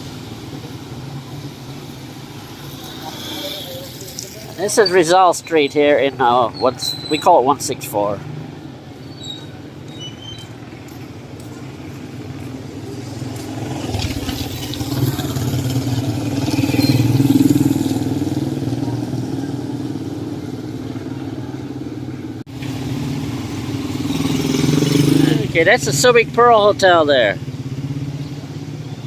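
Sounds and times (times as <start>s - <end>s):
vehicle engine passing by: 10.6s - 29.0s.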